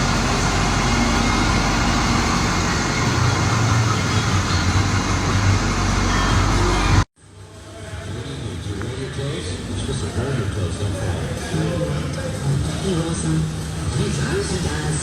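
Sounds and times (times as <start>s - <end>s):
truck engine running: 0.0s - 7.1s.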